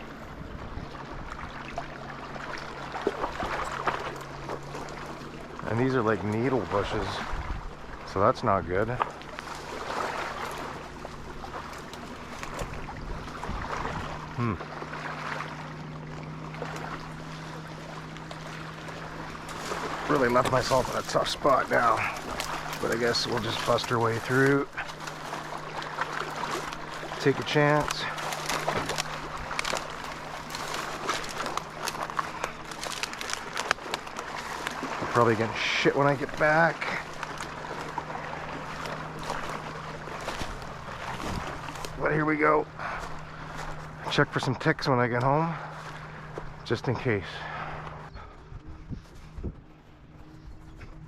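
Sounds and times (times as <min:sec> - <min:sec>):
outdoor background noise: 0:00.0 - 0:51.0
steady low hum: 0:00.0 - 0:51.0
brush rustling and snapping: 0:08.8 - 0:14.1, 0:16.2 - 0:42.1, 0:43.0 - 0:44.1.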